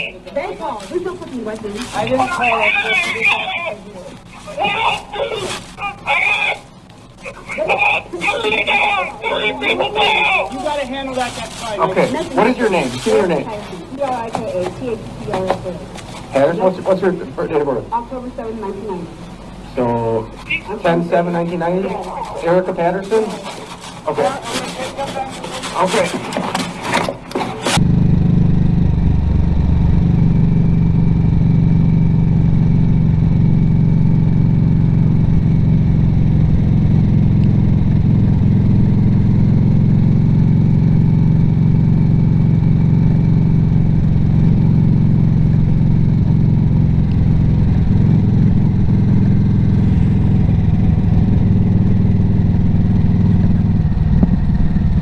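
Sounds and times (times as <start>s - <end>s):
motorcycle engine running: 27.7s - 55.0s.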